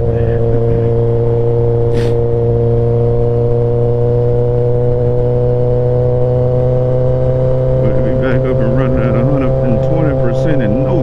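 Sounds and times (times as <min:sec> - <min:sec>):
short hiss: 0:01.9 - 0:02.2.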